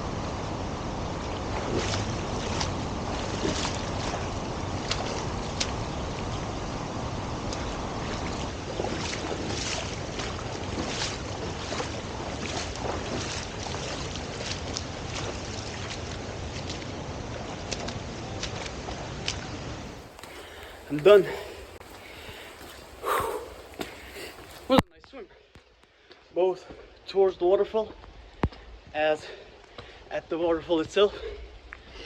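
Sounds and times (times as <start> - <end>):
swimmer splashing: 0.4 - 24.8
waterfall rushing: 19.8 - 24.8.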